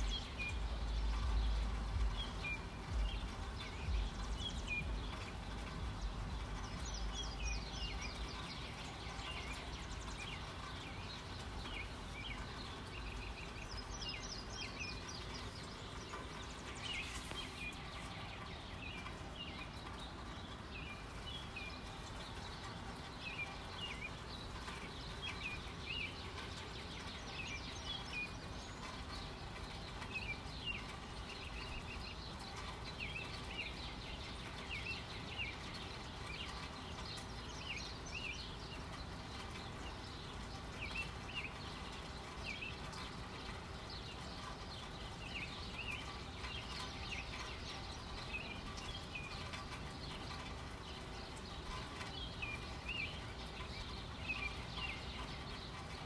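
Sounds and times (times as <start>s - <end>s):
birds chirping: 0.0s - 56.0s
low background noise: 0.0s - 56.0s.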